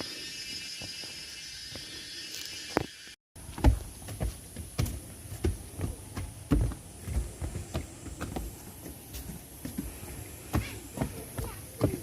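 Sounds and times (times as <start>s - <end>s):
footsteps thudding: 3.4s - 12.0s.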